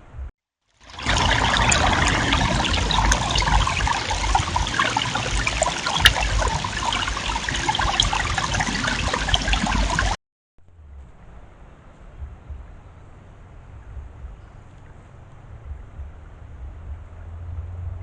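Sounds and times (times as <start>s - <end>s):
trickling rushing water: 0.8s - 10.2s
low rumble: 0.9s - 18.0s.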